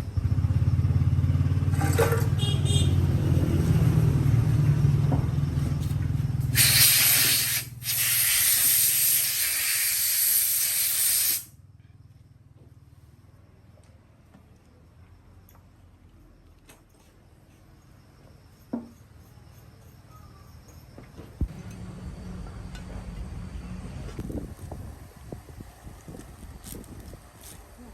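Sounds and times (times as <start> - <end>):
loud spraying hiss: 6.5 - 11.5
machine low pulsing drone: 21.4 - 27.1.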